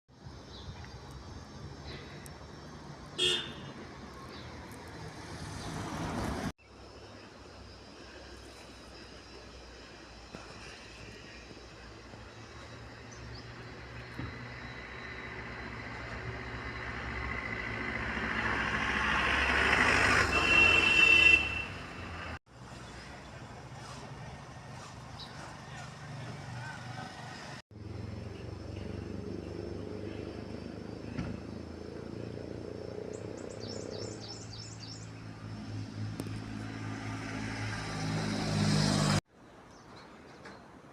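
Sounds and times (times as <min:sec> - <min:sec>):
vehicle passing: 0:04.5 - 0:06.5, 0:14.4 - 0:22.8, 0:23.7 - 0:39.2
engine running with low hum: 0:23.7 - 0:39.2.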